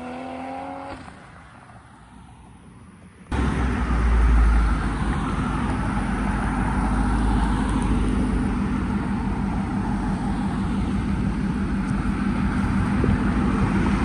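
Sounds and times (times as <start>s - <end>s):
car engine running: 3.3s - 14.0s.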